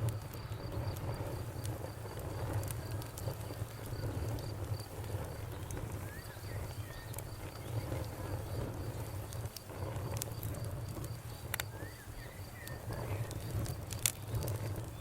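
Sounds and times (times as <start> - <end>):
campfire crackling: 0.0 - 15.0
insect chirping: 3.5 - 15.0.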